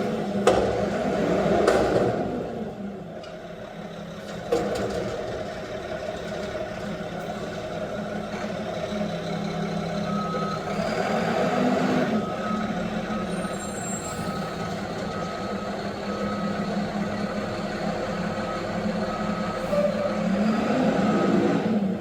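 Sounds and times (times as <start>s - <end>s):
reverse alarm beeping: 12.2s - 16.9s.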